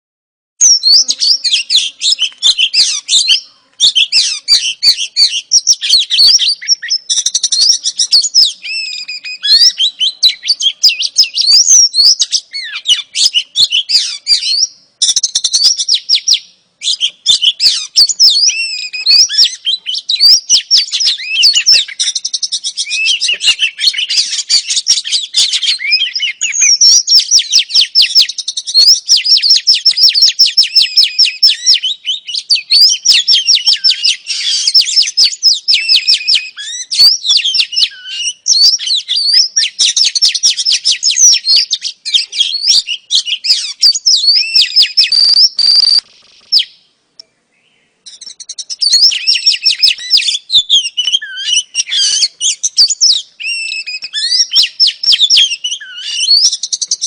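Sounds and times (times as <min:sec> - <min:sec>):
bird chattering high notes: 0:00.6 - 0:27.3, 0:40.3 - 0:46.8.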